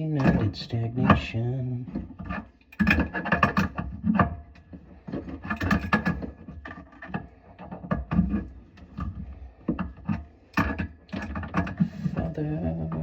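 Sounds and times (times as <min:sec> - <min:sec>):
tools knocking and clattering: 0:02.0 - 0:12.2.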